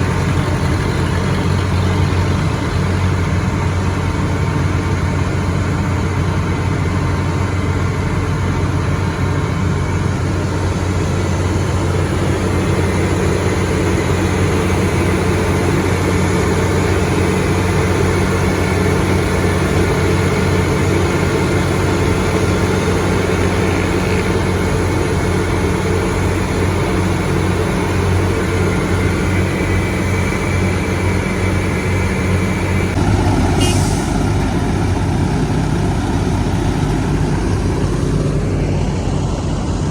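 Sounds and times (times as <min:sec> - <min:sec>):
heavy diesel engine running: 0:00.0 - 0:39.9
brief hiss: 0:33.4 - 0:34.4.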